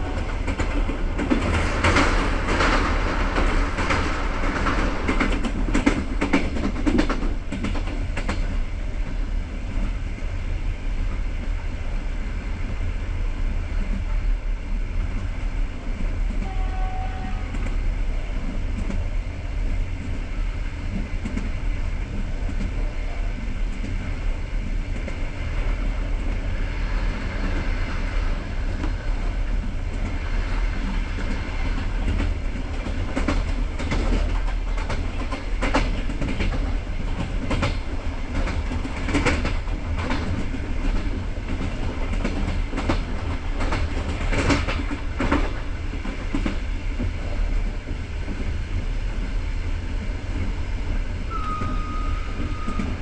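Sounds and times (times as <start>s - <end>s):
train rumbling on track: 0.0s - 53.0s
wheels clacking over rail joints: 31.2s - 48.5s.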